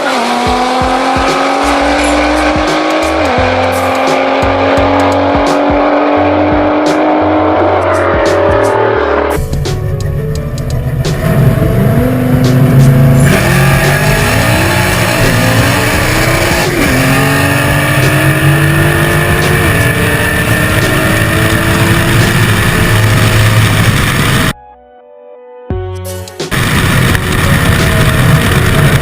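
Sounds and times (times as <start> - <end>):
race cars accelerating: 0.0 - 9.4, 11.2 - 24.6, 26.5 - 29.0
music: 0.0 - 29.0.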